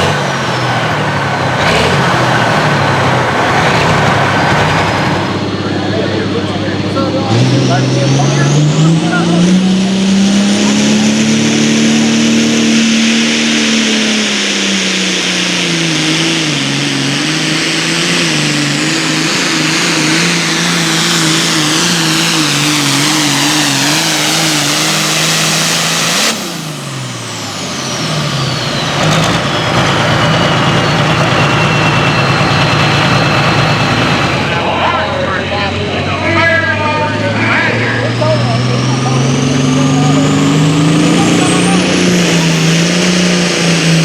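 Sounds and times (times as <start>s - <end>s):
tractor diesel engine at full throttle: 0.0s - 44.0s
high turbo whistle: 19.4s - 34.4s.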